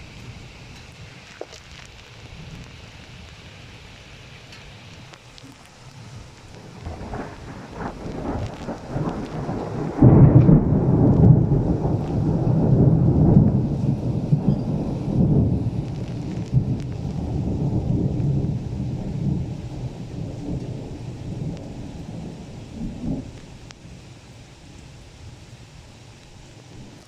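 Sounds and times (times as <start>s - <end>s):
heavy rain hiss: 0.0s - 27.0s
thunder rolling: 5.6s - 24.1s.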